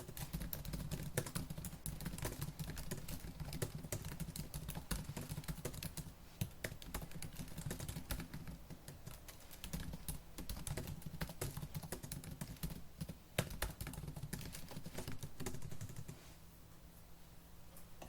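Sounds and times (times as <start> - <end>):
fast typing on laptop keyboard: 0.0 - 16.2.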